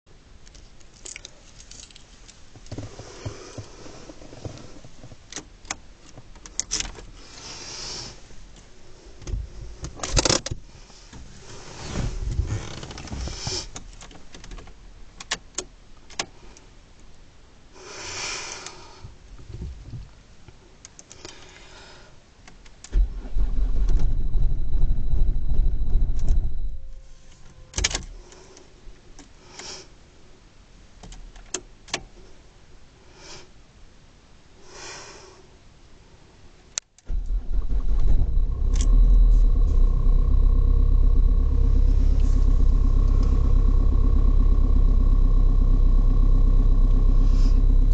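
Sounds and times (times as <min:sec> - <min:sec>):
diesel engine starting and running: 0:22.9 - 0:28.3, 0:37.0 - 0:47.9.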